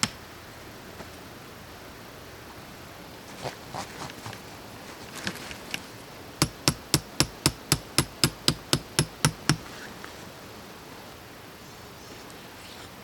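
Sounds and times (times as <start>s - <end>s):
hammer striking: 6.4s - 9.7s.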